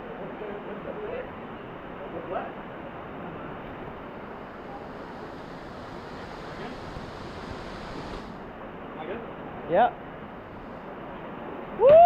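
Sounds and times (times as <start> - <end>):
waterfall rushing: 3.9 - 8.6.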